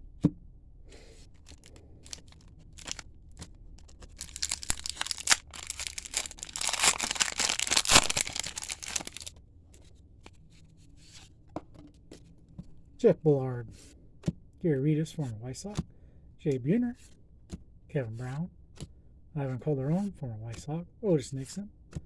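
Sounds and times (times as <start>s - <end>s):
card pack wrapper tearing and crinkling: 1.3s - 3.0s, 3.8s - 9.3s.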